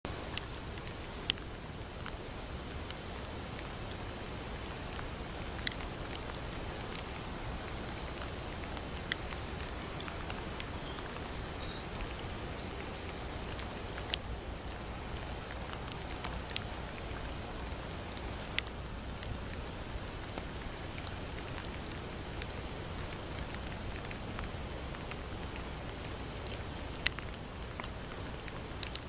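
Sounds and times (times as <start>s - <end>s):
rain falling on water and grass: 0.1s - 29.0s
sharp ticks: 28.7s - 29.0s.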